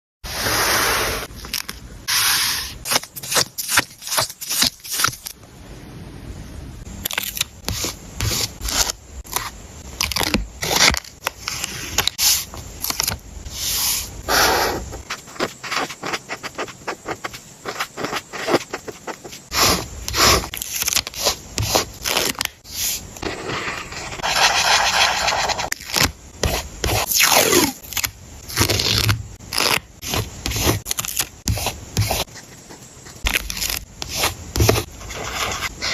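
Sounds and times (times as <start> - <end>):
paper crinkles taps and scrapes: 33.2 - 35.7.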